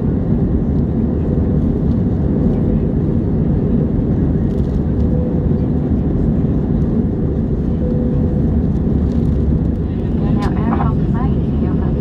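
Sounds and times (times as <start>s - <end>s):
jet engines rumbling in cabin: 0.0s - 12.0s
faint steady whine: 7.5s - 12.0s.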